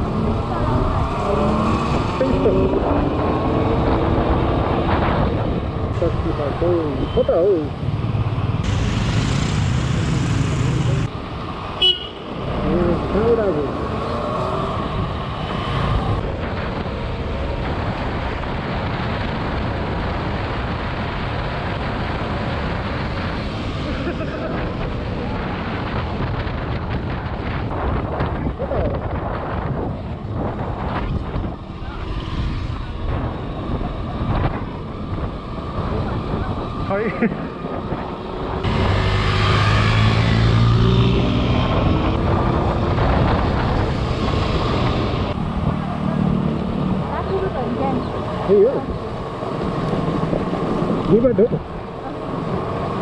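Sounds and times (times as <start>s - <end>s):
wind and road noise: 0.0s - 53.0s
vehicle engine running: 8.1s - 11.1s.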